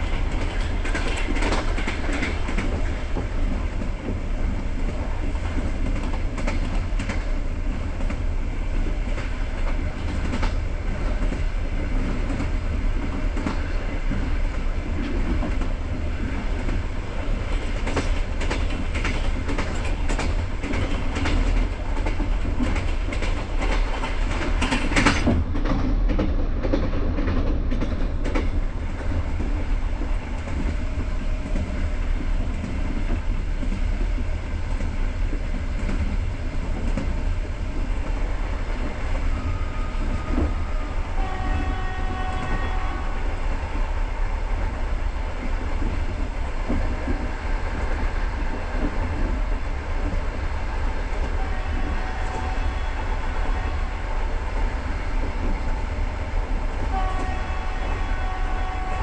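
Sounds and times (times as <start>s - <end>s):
train rumble inside carriage: 0.0s - 59.0s
train horn: 39.2s - 43.7s, 51.3s - 54.4s, 56.7s - 59.0s.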